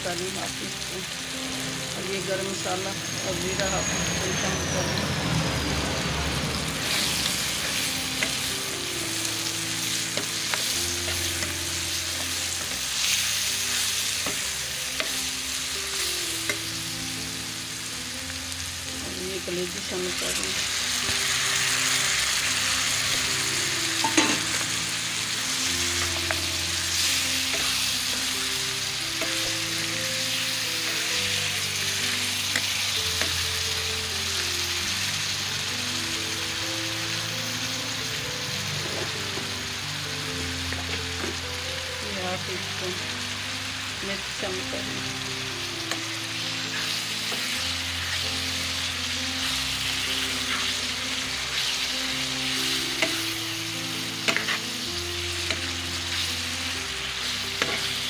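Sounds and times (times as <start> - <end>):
oil sizzling in a pan: 0.0 - 58.0
soft background music: 0.0 - 58.0
steel ladle clicking on pan: 24.0 - 24.5.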